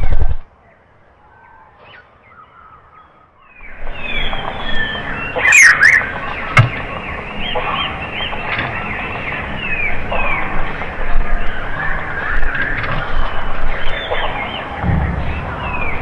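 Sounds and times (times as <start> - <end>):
small birds chirping: 0.0 - 16.0
sharp knock: 14.8 - 16.0.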